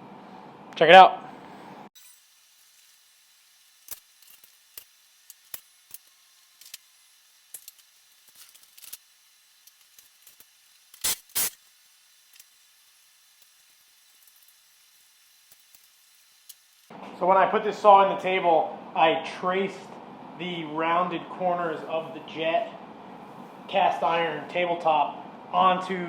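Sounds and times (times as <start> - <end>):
tools and parts clicking: 2.0 - 16.9.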